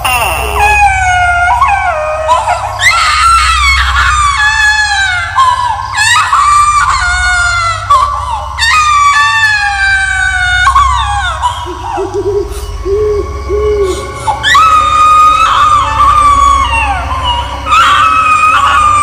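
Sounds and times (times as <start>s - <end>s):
low rumbling drone: 0.0s - 19.0s
high-pitched screaming wails: 13.1s - 19.0s.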